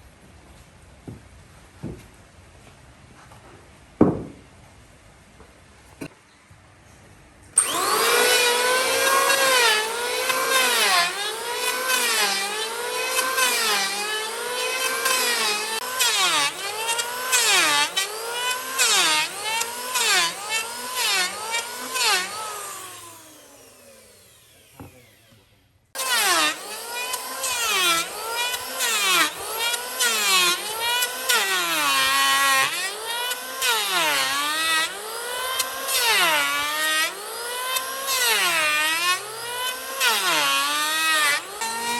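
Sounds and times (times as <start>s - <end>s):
electric power tool cutting wood: 7.6s - 41.9s.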